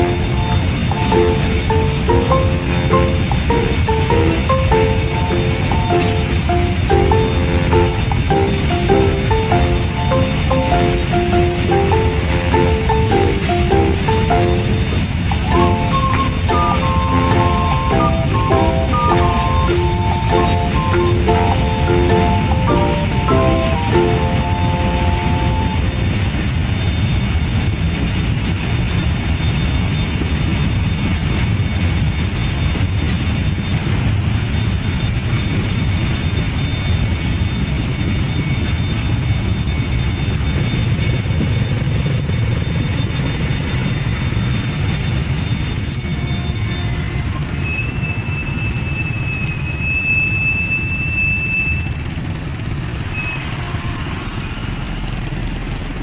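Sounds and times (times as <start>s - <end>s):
train wheels rumbling on rails: 0.0s - 56.0s
high-pitched wheel squeals: 44.9s - 55.0s.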